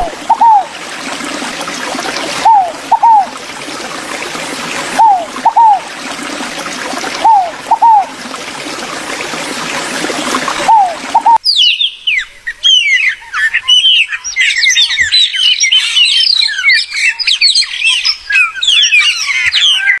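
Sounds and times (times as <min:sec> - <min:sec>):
running water: 0:00.0 - 0:11.4
chorus of songbirds chirping: 0:10.7 - 0:20.0.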